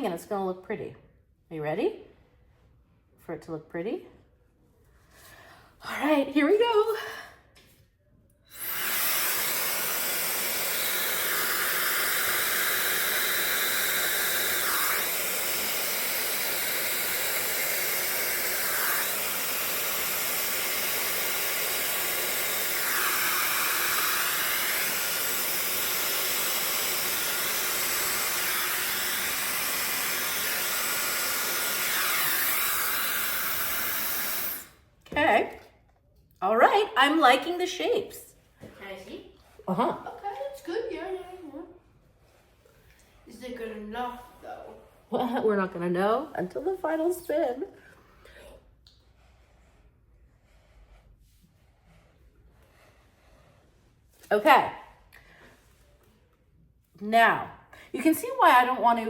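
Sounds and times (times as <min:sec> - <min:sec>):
hairdryer blowing: 0:08.5 - 0:34.8.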